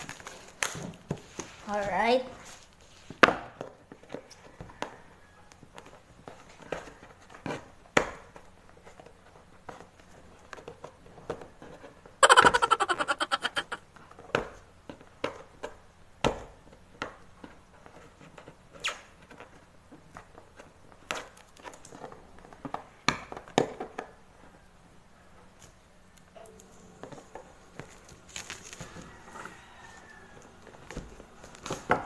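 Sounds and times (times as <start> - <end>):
packing tape ripping off box: 0.0 - 1.1.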